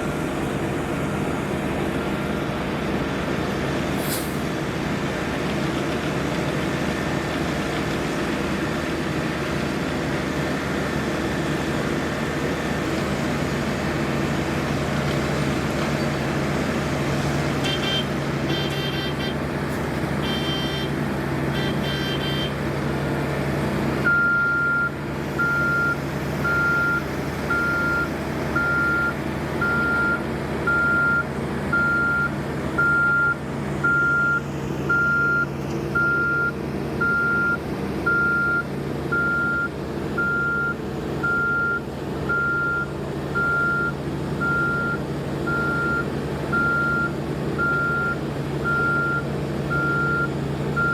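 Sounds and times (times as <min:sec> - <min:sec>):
diesel construction machinery running: 0:00.0 - 0:50.9
vehicle reversing alarm beeping: 0:14.2 - 0:19.5, 0:20.2 - 0:22.6, 0:24.0 - 0:50.9.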